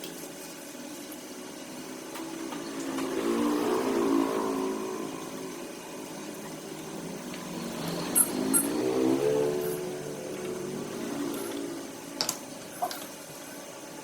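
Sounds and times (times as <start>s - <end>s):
small engine revving: 2.7s - 5.5s, 7.4s - 11.9s.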